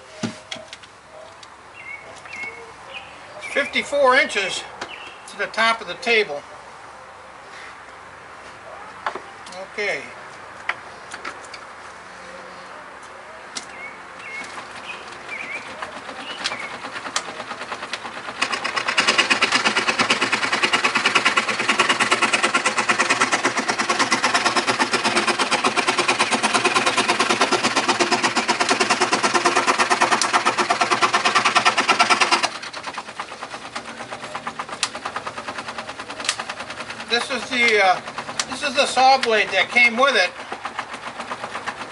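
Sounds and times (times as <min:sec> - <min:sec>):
saw blade rasping through wood: 0:15.7 - 0:41.9
saw mechanism clattering: 0:34.4 - 0:41.2.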